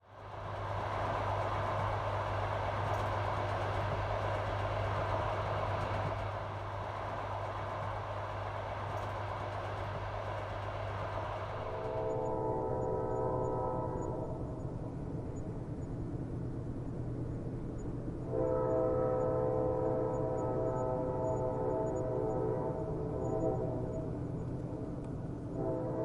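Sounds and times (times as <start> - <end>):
train running on rails: 0.0 - 26.0
train horn chord: 11.7 - 14.6, 18.3 - 24.1, 25.5 - 26.0.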